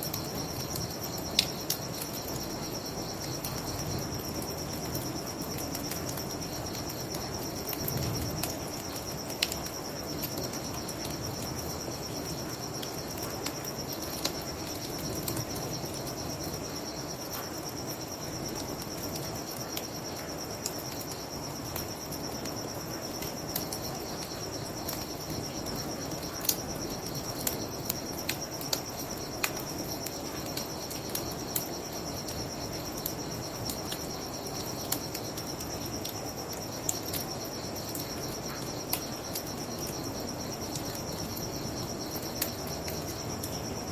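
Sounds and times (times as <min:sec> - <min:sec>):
crickets chirping: 0:00.0 - 0:43.9
bonfire crackling and popping: 0:03.2 - 0:11.6, 0:24.7 - 0:38.1.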